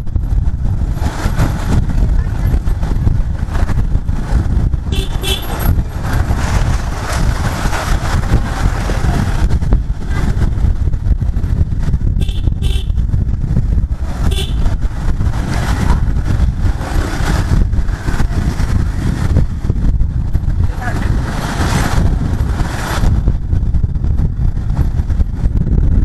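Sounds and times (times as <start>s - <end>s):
motorcycle engine rumble: 0.0s - 26.0s
road noise: 0.0s - 26.0s
vehicle horn tooting: 4.9s - 5.7s, 12.2s - 13.0s, 14.2s - 14.8s.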